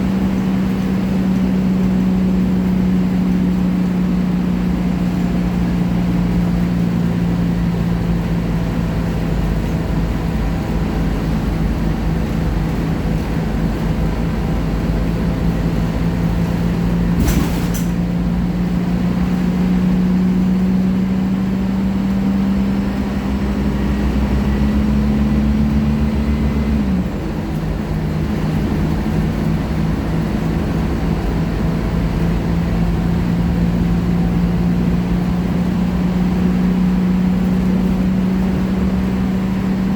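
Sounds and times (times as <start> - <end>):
bus diesel engine droning: 0.0 - 39.9.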